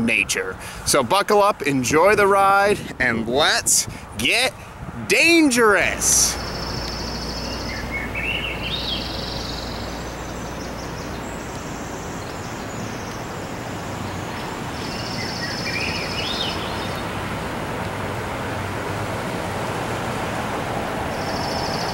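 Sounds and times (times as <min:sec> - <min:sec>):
steady rushing noise: 0:02.1 - 0:21.9
birds chirping: 0:04.2 - 0:17.4, 0:21.1 - 0:21.9.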